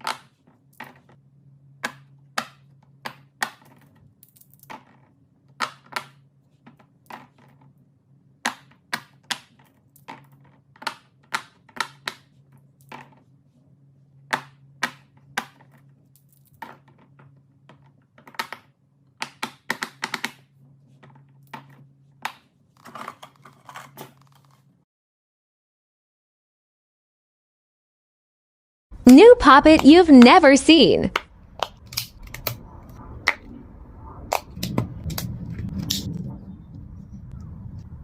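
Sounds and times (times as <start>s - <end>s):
faint low hum: 29.0s - 38.0s.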